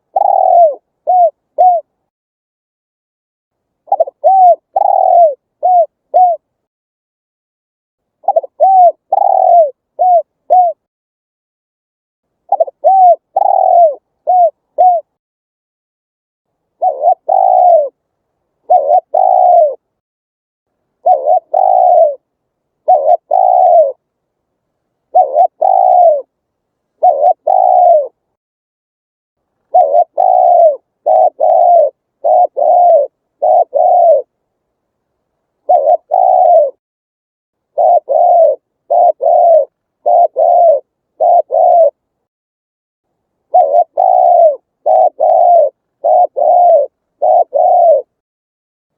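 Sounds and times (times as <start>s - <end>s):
dove cooing: 0.0s - 2.0s, 3.8s - 6.5s, 8.2s - 10.9s, 12.5s - 15.2s, 16.8s - 18.0s, 18.6s - 19.8s, 21.0s - 24.0s, 25.1s - 26.3s, 27.0s - 28.2s, 29.7s - 34.4s, 35.6s - 36.8s, 37.7s - 42.0s, 43.5s - 48.2s.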